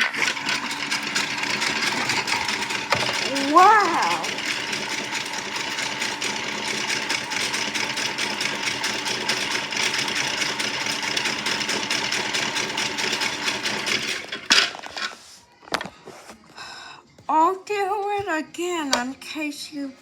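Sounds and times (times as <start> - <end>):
small electric motor rattling: 0.0 - 14.8.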